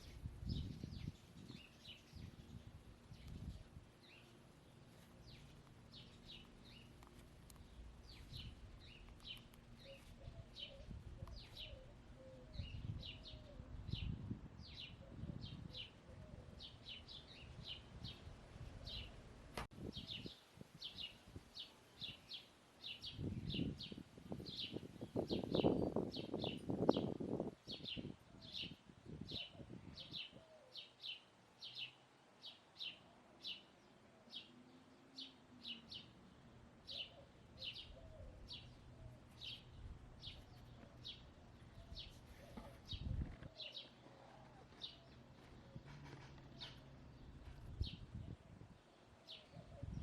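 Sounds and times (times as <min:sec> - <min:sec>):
songbird chirping: 0:00.0 - 0:50.0.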